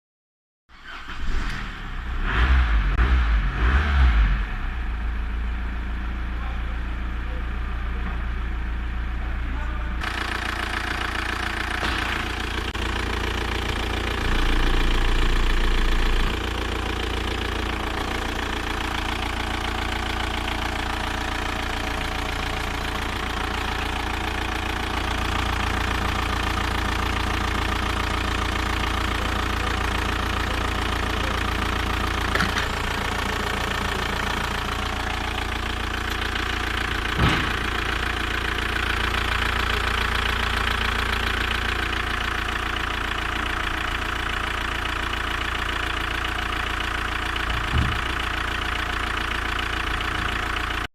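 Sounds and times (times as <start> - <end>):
diesel engine idling: 0.8 - 50.9.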